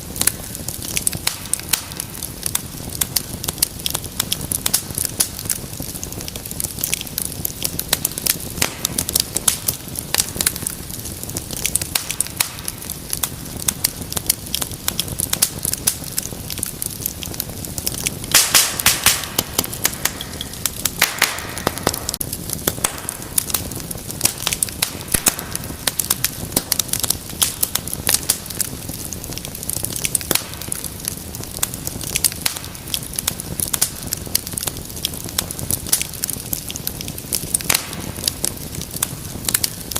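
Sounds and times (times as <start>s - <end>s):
loud fire pops: 0.0s - 39.9s
low rumble of flame: 0.0s - 39.9s
wood fire crackling: 0.0s - 39.9s.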